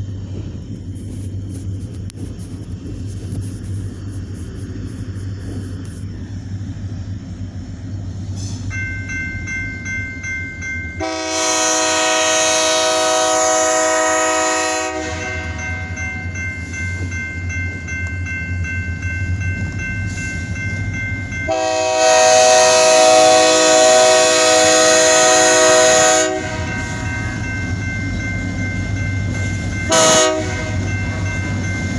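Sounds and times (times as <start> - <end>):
diesel engine rumble: 0.0 - 11.0
bell ringing: 8.7 - 11.2, 15.3 - 21.8, 26.6 - 31.9
locomotive air horn blasts: 11.0 - 15.7, 21.5 - 27.0, 29.8 - 30.9.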